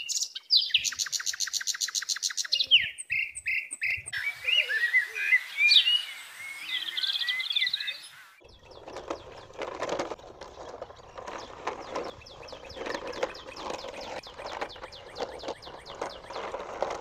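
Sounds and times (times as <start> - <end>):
small birds chirping: 0.0 - 17.0
knocks and rustling: 8.5 - 17.0.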